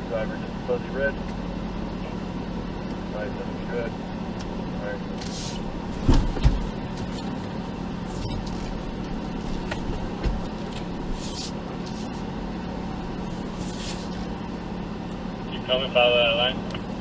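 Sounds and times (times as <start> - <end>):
engine running at low revs: 0.0 - 17.0
low thumps: 5.7 - 7.0.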